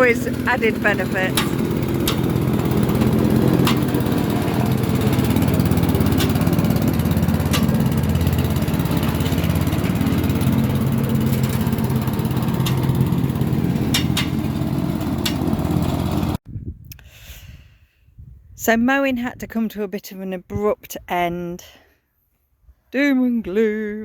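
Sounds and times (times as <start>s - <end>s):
lawn mower engine running: 0.0s - 16.4s.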